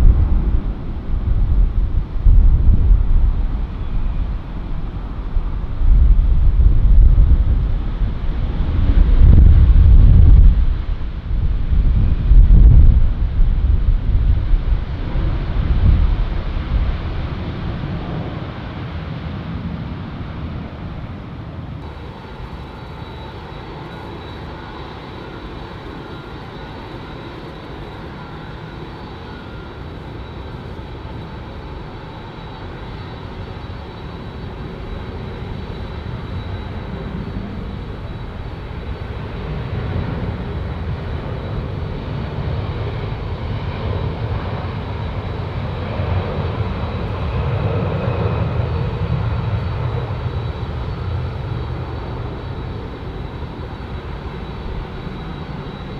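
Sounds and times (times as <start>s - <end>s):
wind buffeting microphone: 0.0s - 18.4s, 21.8s - 55.9s
distant jet engines rumbling: 21.8s - 55.9s.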